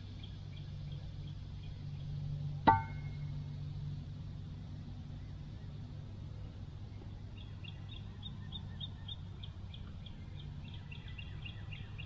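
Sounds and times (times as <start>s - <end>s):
low background hum: 0.0s - 12.0s
bird chirping: 6.9s - 12.0s.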